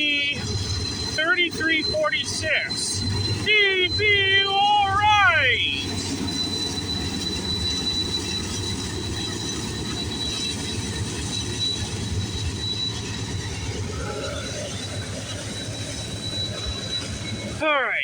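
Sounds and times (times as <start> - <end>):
high whine: 0.0 - 18.0
train wheels rumbling on rail: 5.4 - 17.6.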